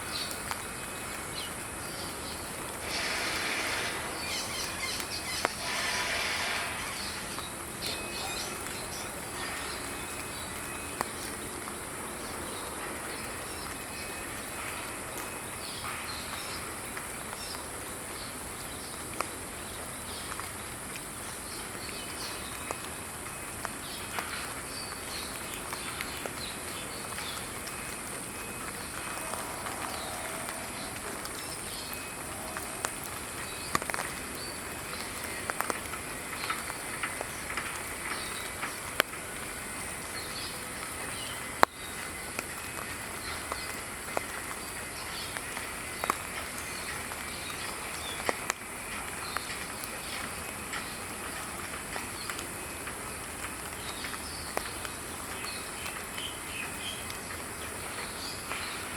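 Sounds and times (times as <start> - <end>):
small birds chirping: 0.0 - 11.4
high-pitched hiss: 0.0 - 18.8.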